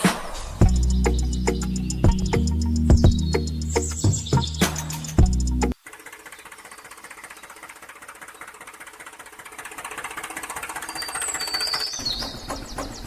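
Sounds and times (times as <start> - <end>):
high chirps: 0.4 - 5.8
small electric motor clattering: 5.7 - 13.0.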